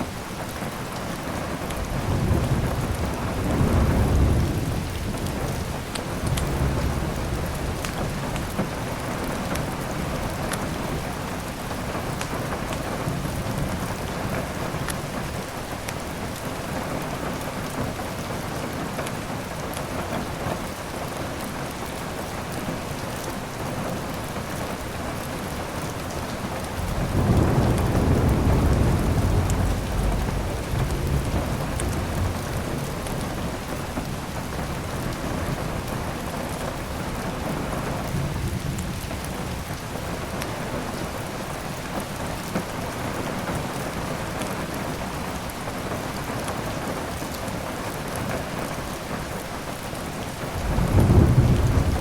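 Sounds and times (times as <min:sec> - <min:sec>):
heavy rain: 0:00.0 - 0:52.0
thunder rolling: 0:01.8 - 0:09.3, 0:26.5 - 0:39.6, 0:50.5 - 0:52.0.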